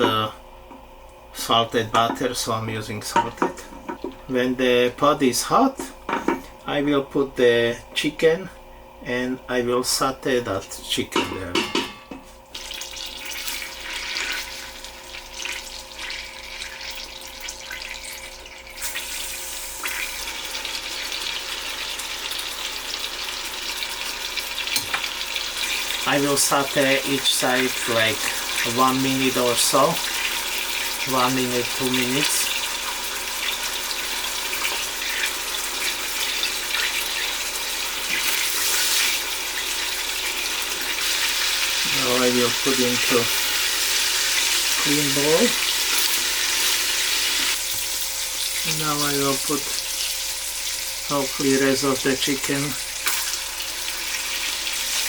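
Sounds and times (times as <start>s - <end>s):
chicken sizzling in butter: 12.5s - 55.0s.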